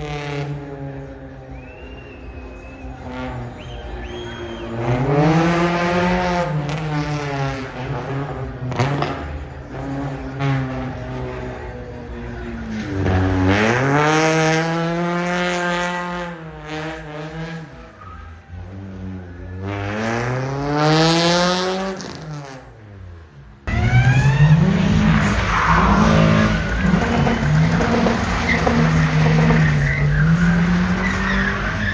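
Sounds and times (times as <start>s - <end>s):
car engine revving: 3.1s - 22.3s, 23.7s - 31.9s
tyres squealing: 23.7s - 31.9s.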